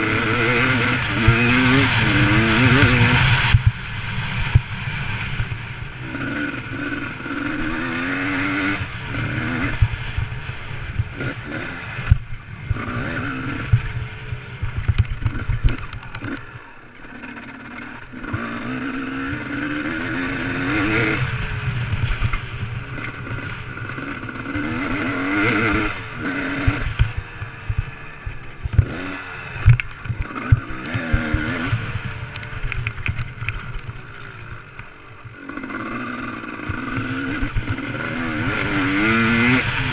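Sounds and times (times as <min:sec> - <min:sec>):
motocross bike engine revving: 0:00.0 - 0:39.9
sharp thumps and clatter: 0:13.6 - 0:16.5, 0:29.6 - 0:35.8.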